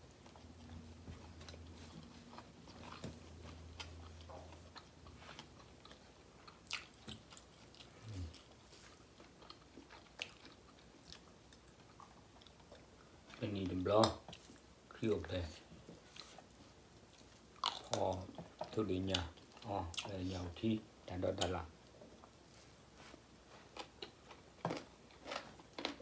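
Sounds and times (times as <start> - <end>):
people chewing with wet mouth sounds: 0.0 - 20.6, 21.3 - 26.0.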